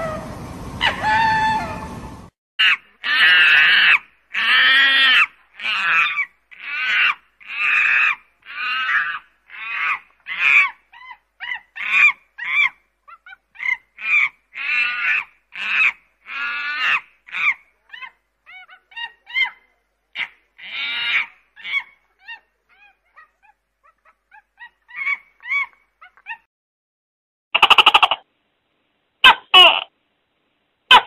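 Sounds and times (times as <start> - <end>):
monkey calling harshly: 0.8 - 1.9, 2.6 - 26.4, 27.6 - 28.3, 29.2 - 29.9.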